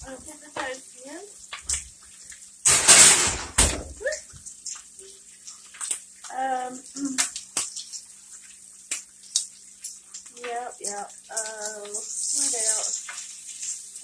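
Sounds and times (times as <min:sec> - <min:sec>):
bacon frying crackling and popping: 0:00.0 - 0:14.0
sharp clunk: 0:02.7 - 0:03.9.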